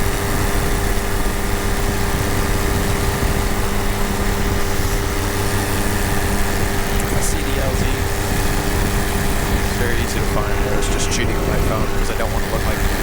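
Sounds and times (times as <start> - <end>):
paramotor engine and propeller: 0.0 - 13.0.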